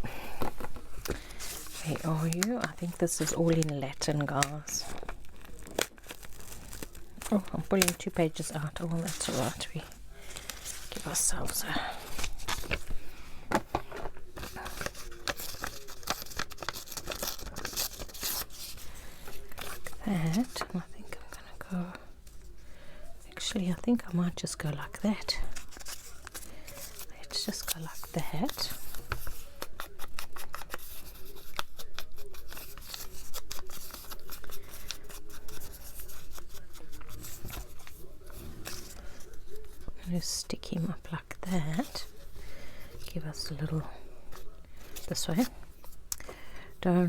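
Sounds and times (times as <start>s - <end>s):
paper tearing and crinkling: 0.2s - 8.2s, 8.9s - 13.1s, 13.8s - 20.6s, 25.4s - 40.0s
scissors snipping paper: 14.4s - 18.8s.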